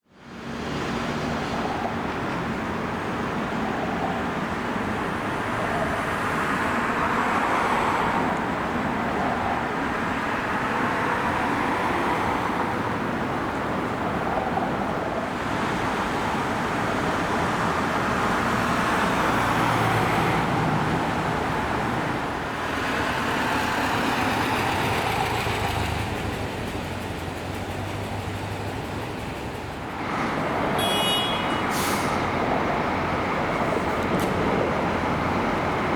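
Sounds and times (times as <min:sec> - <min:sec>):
vehicles passing: 0:00.1 - 0:35.9.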